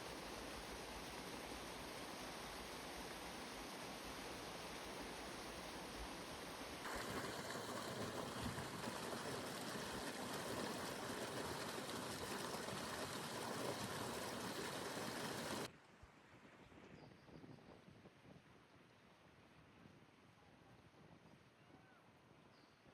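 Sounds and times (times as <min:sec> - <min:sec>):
rushing water: 0:00.0 - 0:15.7.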